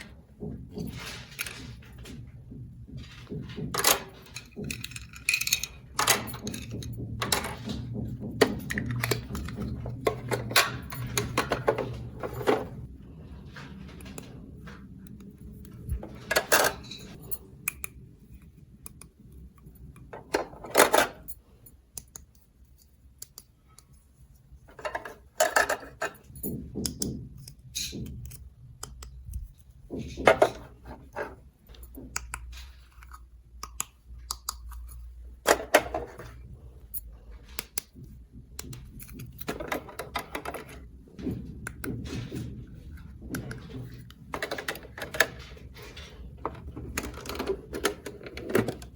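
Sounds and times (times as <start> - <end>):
plastic toy pieces clattering: 3.1 - 7.8, 43.2 - 48.9.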